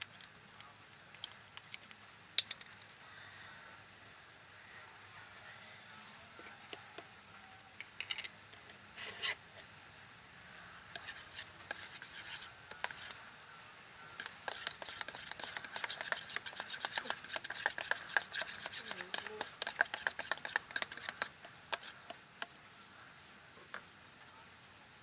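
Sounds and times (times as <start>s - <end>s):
scraping strokes: 9.0s - 9.4s, 11.0s - 13.2s, 14.2s - 22.2s.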